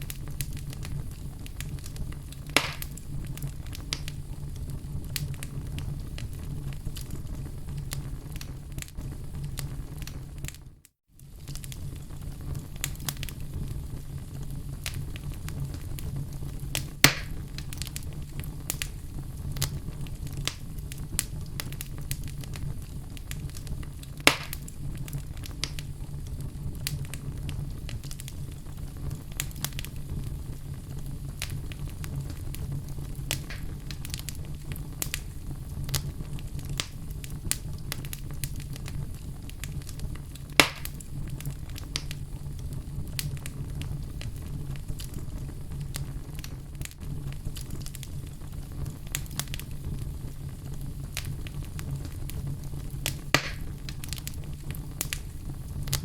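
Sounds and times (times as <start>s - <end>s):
fire crackling: 0.0s - 56.0s
loud sharp pops: 2.5s - 3.0s, 17.0s - 17.4s, 24.2s - 24.7s, 33.3s - 33.9s, 40.6s - 41.0s, 53.3s - 53.8s.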